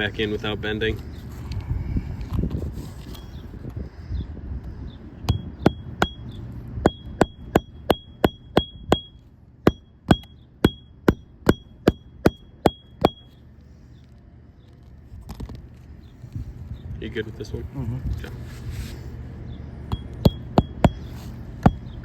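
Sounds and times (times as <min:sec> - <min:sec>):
hammer striking nails: 0:06.8 - 0:13.3, 0:19.9 - 0:21.9.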